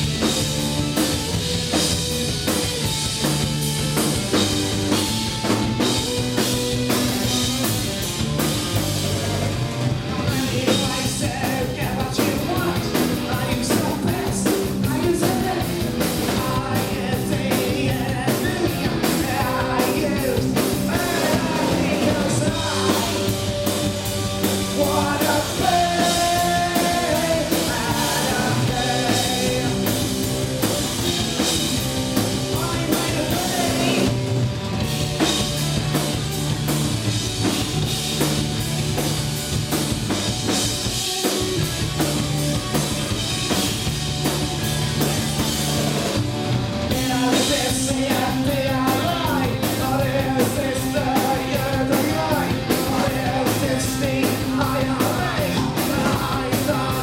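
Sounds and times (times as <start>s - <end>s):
punk rock band playing: 0.0s - 57.0s
person singing: 10.3s - 23.4s, 24.7s - 30.0s, 32.5s - 34.2s, 46.9s - 57.0s.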